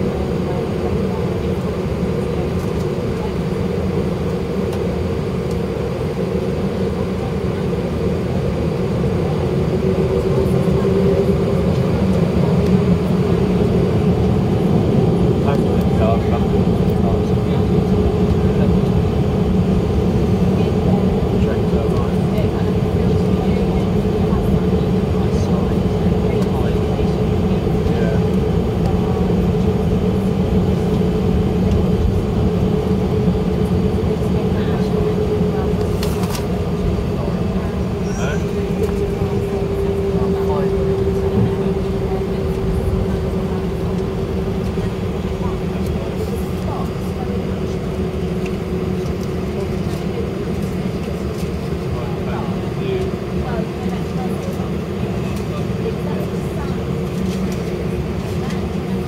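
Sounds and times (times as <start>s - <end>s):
jet engines humming in cabin: 0.0s - 59.0s.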